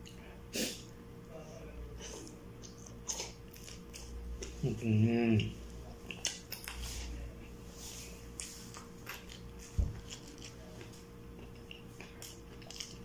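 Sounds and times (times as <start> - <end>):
faint steady hum: 0.0 - 13.0
mouth chewing clicks and smacks: 2.6 - 4.6, 5.4 - 6.8, 11.4 - 13.0.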